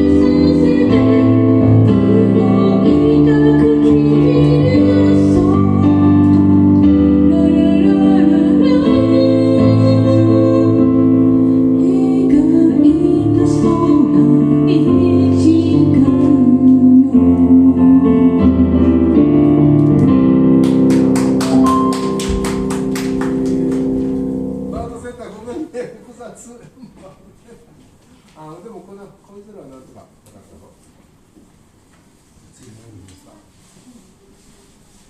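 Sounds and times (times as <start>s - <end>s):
person singing: 0.0s - 11.1s, 11.7s - 18.9s
keyboard chords: 0.0s - 25.5s.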